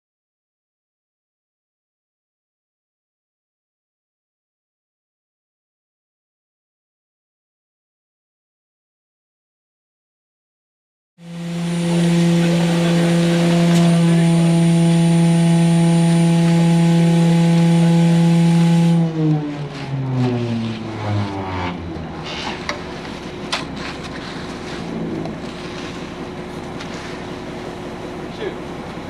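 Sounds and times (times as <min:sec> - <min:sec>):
motor running and spinning down: 0:11.2 - 0:23.3
low rumble: 0:11.2 - 0:29.0.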